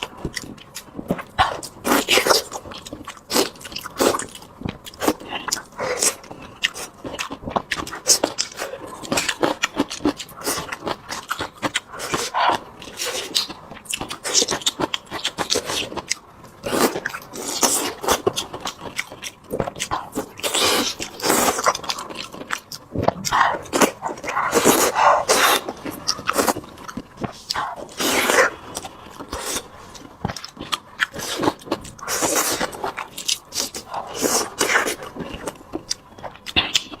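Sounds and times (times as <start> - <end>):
person chewing food: 0.0 - 37.0.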